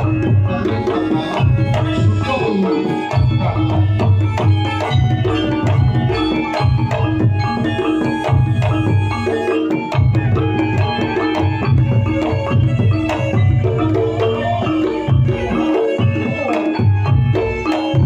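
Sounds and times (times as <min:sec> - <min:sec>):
held melodic notes: 0:00.0 - 0:18.0.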